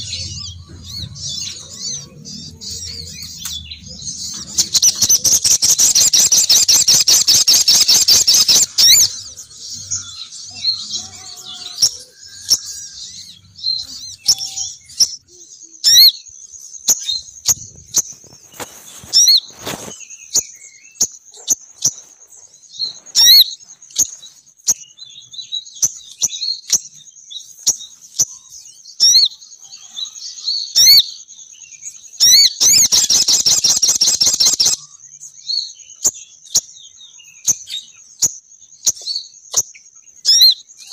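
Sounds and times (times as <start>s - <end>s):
high-pitched whine: 0.0s - 6.0s
bird chattering trill: 0.0s - 15.2s, 15.8s - 16.2s, 32.2s - 35.0s
bird chirps: 0.0s - 40.9s.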